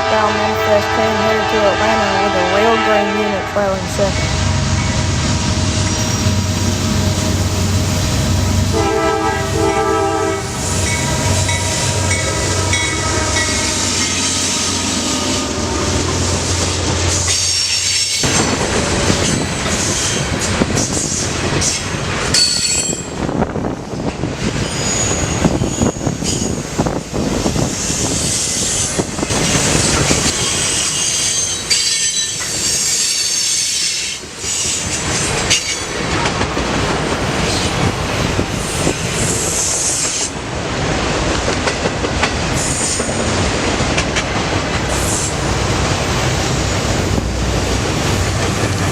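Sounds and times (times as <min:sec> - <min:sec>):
train horn: 0:00.0 - 0:04.6, 0:08.7 - 0:16.1
diesel locomotives rumbling: 0:00.0 - 0:48.9
freight cars clattering on rails: 0:10.8 - 0:48.9
high wheel squeal: 0:24.6 - 0:26.6, 0:29.8 - 0:35.9.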